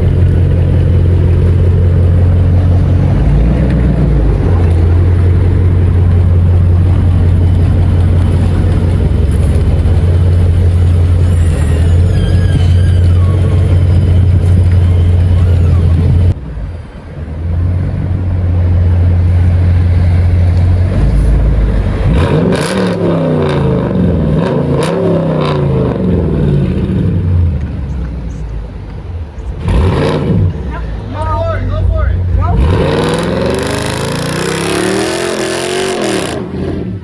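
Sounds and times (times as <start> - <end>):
car engine idling loudly: 0.0 - 22.4
car engine revving: 0.0 - 37.0.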